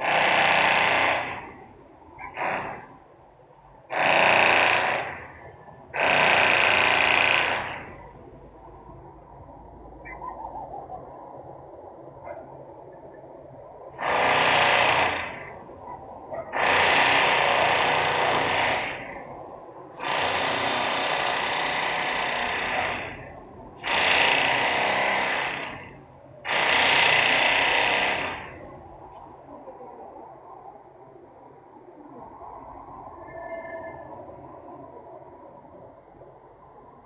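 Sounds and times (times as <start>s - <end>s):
industrial machine bursts: 0.0s - 1.6s, 2.3s - 3.0s, 3.9s - 8.0s, 14.0s - 15.6s, 16.6s - 19.3s, 20.0s - 28.7s.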